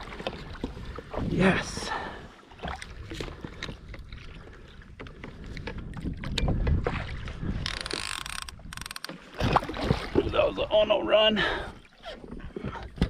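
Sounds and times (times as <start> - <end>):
water sloshing against kayak: 0.0 - 13.0
fishing reel drag buzzing: 7.7 - 9.1.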